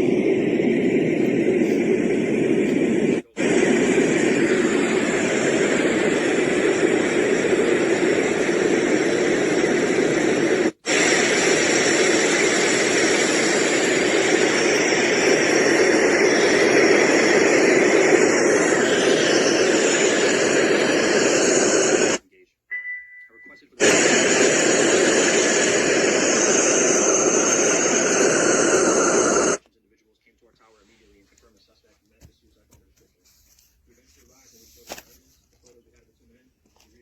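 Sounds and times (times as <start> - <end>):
white noise machine rushing: 0.0 - 22.2, 23.8 - 29.6.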